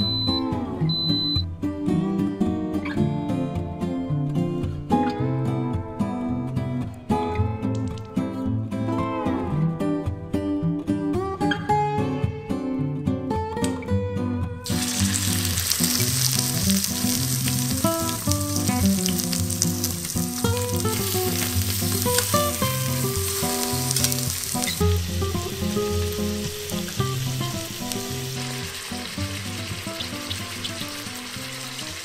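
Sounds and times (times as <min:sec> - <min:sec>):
soft background guitar music: 0:00.0 - 0:32.0
chicken sizzling in hot oil: 0:14.6 - 0:32.0.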